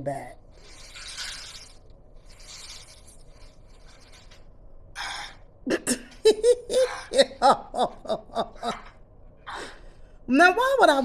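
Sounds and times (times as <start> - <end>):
person laughing in short bursts: 5.7 - 8.9.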